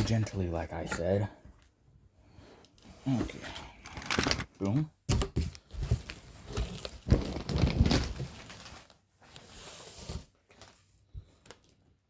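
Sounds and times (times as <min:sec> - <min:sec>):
packaging rustling: 0:05.5 - 0:09.1.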